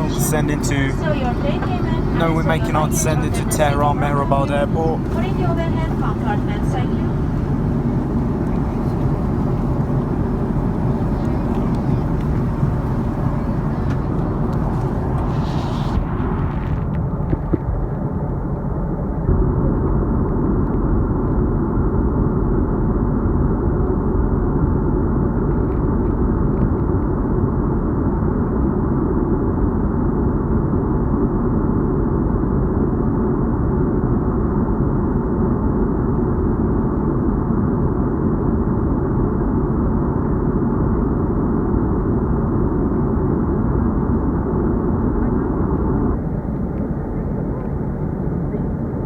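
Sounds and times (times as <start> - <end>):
jet engines roaring in cabin: 0.0 - 20.4, 34.4 - 49.0.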